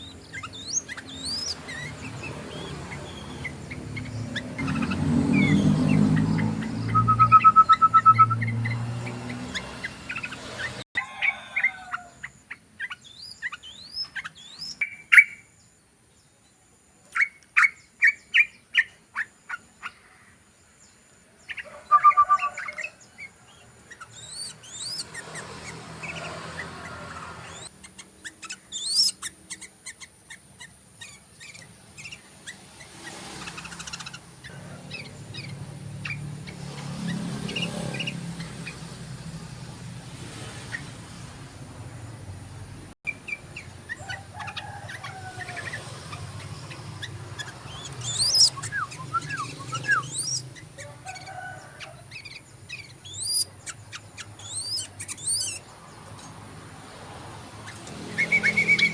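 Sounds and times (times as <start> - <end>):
bird chattering calls: 0.0 - 10.8, 21.5 - 39.0, 43.1 - 55.7, 57.6 - 58.9.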